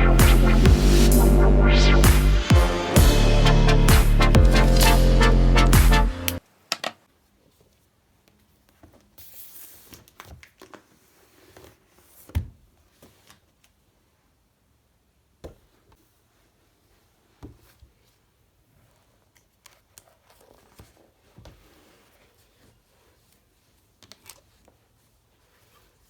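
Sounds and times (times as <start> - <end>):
rustling and crinkling: 15.6 - 26.0.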